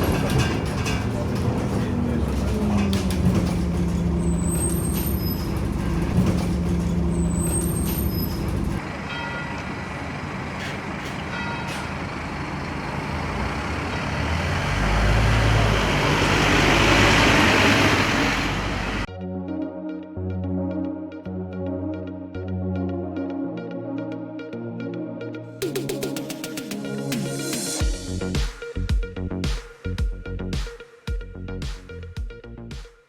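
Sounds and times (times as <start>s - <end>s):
bus engine drone: 0.0s - 19.1s.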